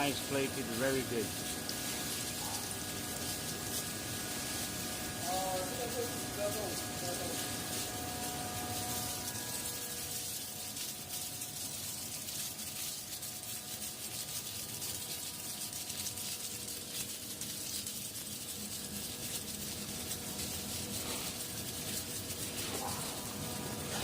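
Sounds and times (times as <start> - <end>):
machine hum tones: 0.0 - 12.1
ice machine hiss: 0.0 - 24.0.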